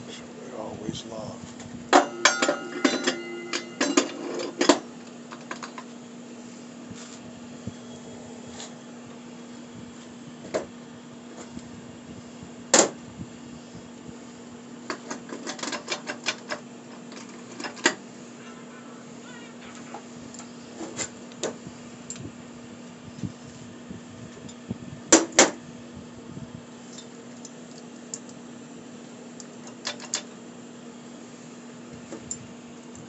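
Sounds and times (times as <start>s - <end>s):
steady hum: 0.0s - 29.5s
metal parts and tools clinking: 2.0s - 4.8s.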